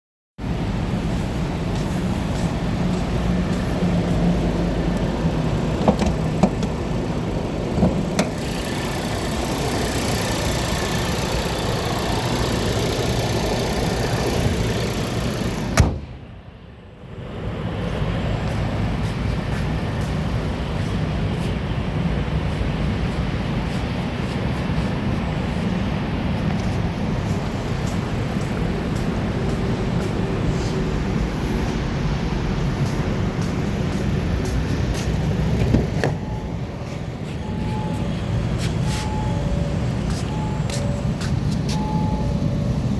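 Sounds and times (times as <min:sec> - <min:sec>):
car engine idling: 0:00.8 - 0:16.4.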